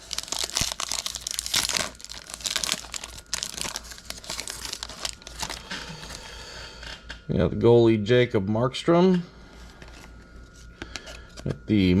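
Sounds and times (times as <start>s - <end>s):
foil card pack tearing and crinkling: 0.0s - 6.2s.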